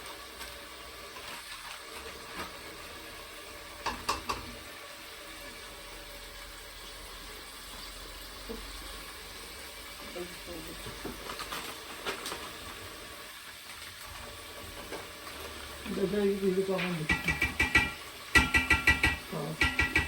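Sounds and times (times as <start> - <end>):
food sizzling in a pan: 0.0 - 20.0.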